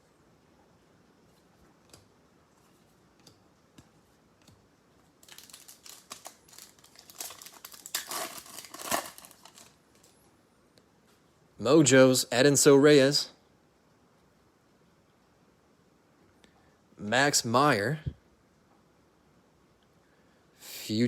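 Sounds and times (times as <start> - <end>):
plastic wrapper crinkling and tearing: 5.2 - 10.1.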